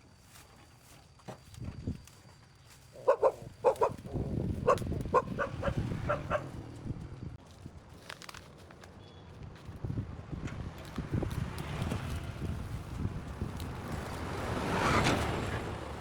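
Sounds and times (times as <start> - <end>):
short animal calls: 3.0 - 6.4.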